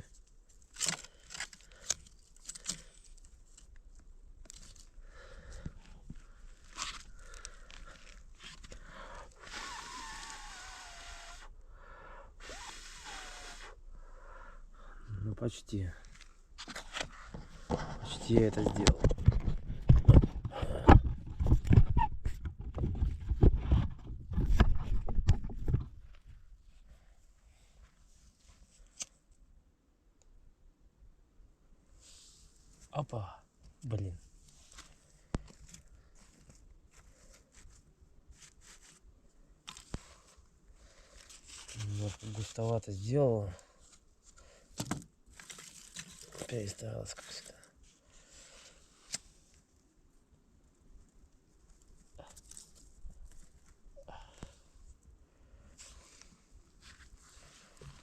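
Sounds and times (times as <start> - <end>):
soft rustling crackle: 0.0 - 11.5, 21.1 - 29.4, 31.9 - 58.0.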